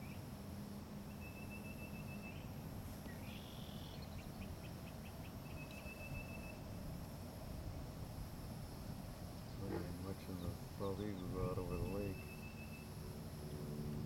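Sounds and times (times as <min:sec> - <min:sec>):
low outdoor rumble: 0:00.0 - 0:14.0
high bird calls: 0:10.3 - 0:12.9.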